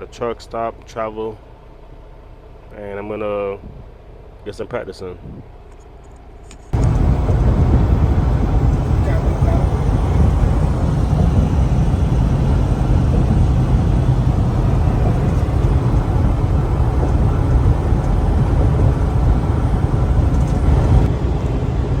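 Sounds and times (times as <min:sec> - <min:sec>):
diesel truck engine rumble: 0:06.8 - 0:22.0
road noise: 0:06.8 - 0:22.0.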